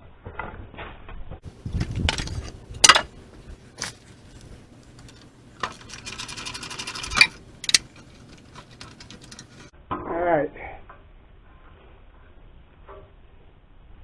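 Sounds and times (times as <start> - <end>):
scraping rumble: 1.4 - 9.7
metal tools clanking: 1.8 - 3.1, 4.9 - 9.7.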